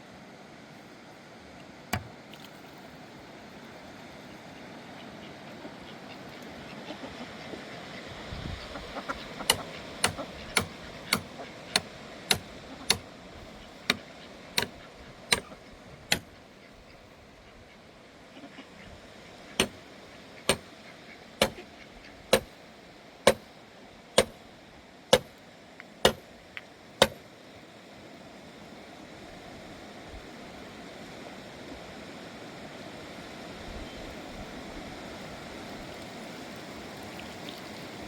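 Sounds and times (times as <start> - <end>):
hand tool striking something hard: 9.5 - 13.0, 15.3 - 15.5, 22.3 - 22.5, 23.3 - 23.5, 24.2 - 24.4, 25.1 - 25.3, 26.0 - 26.3.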